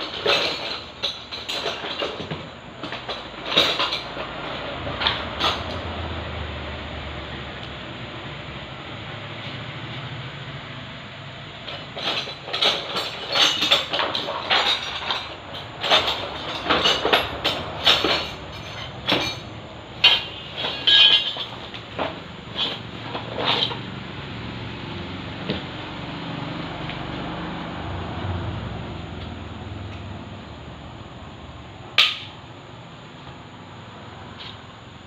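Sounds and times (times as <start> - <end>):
tools and metal parts clinking: 0.0 - 5.9, 11.6 - 23.9, 32.0 - 32.4.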